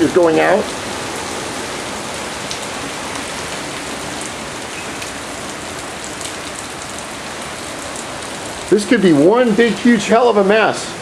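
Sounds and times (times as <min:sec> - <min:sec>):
heavy rain pouring: 0:00.0 - 0:11.0
raindrop ticks: 0:02.4 - 0:07.1.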